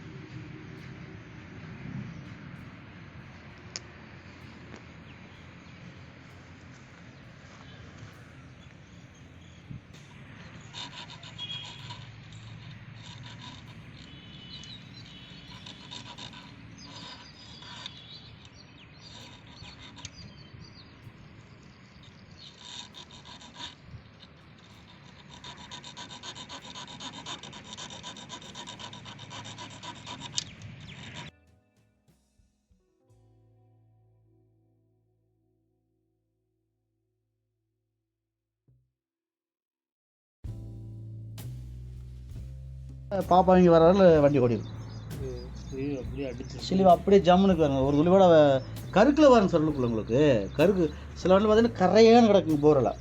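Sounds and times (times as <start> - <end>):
filing strokes on metal: 7.5 - 20.5, 22.3 - 31.3, 43.3 - 53.0.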